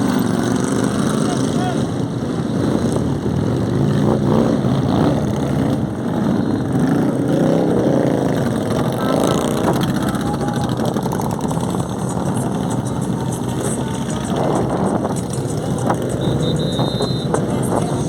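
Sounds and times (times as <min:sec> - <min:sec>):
voices: 0:00.0 - 0:03.0, 0:08.5 - 0:18.0
motorcycle engines running: 0:00.0 - 0:18.0.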